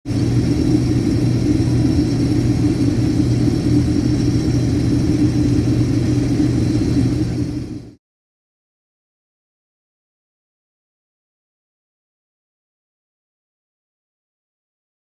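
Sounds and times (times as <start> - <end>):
combine harvester engine drone: 0.1 - 8.0.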